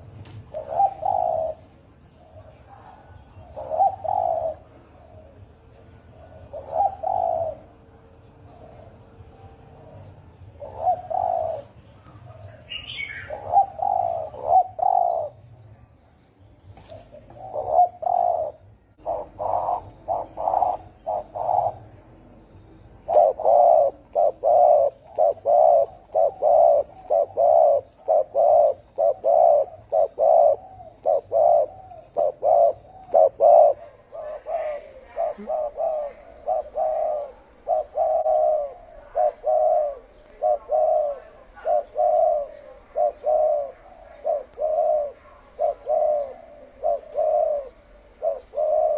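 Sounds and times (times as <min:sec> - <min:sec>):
dove cooing: 0:00.0 - 0:15.5, 0:16.8 - 0:48.9
high bird chirp: 0:10.7 - 0:15.5.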